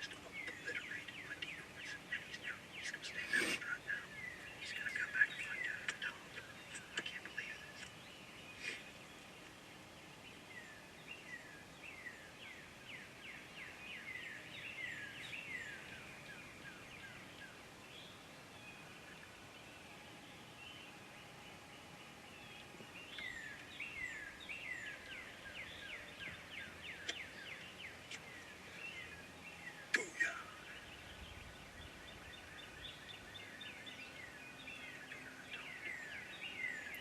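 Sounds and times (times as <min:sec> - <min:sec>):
bird calling downslurred notes: 0:00.0 - 0:09.0
faint outdoor background noise: 0:00.0 - 0:37.0.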